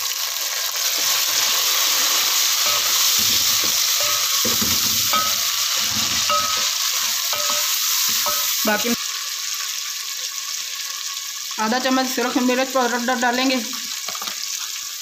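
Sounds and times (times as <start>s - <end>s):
food sizzling in hot oil: 0.0s - 15.0s
wooden spoon scraping pot: 2.0s - 8.5s.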